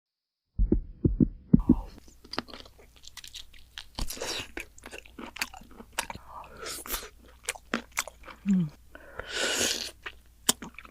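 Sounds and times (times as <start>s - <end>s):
chewing crunchy food: 2.0s - 8.8s, 9.6s - 10.9s.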